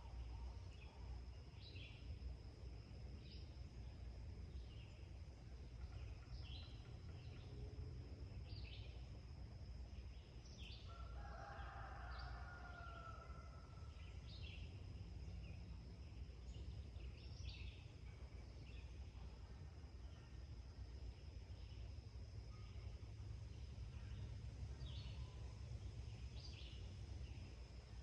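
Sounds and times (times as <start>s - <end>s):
distant rooster crowing: 10.9s - 14.0s.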